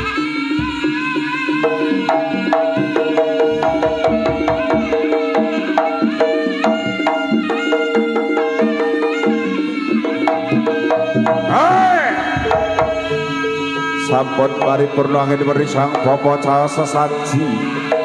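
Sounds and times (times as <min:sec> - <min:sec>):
gamelan music: 0:00.0 - 0:18.0
hand drum patterns: 0:00.0 - 0:18.0.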